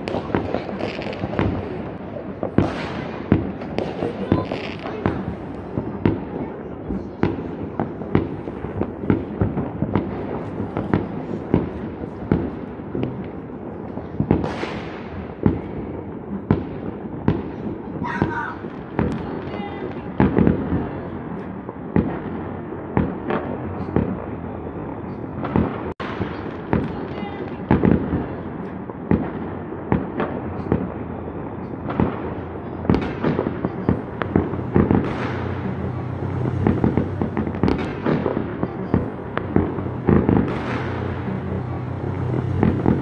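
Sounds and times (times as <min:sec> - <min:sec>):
fireworks bangs and pops: 0:00.0 - 0:43.0
fireworks crackling: 0:00.0 - 0:43.0.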